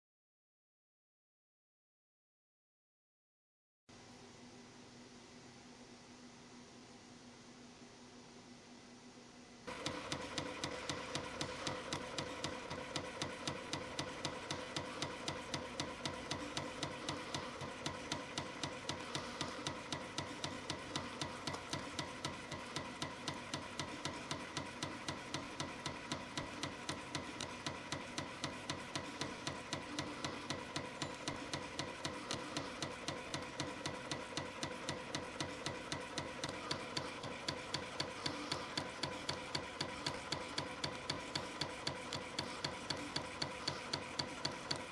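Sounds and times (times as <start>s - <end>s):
rapid machine clicking: 9.7s - 44.9s.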